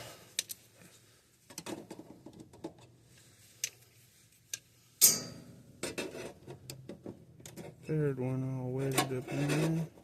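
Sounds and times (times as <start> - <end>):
wires and metal parts clicking: 0.3 - 0.9, 1.5 - 8.0
sharp metallic clank: 5.0 - 6.0.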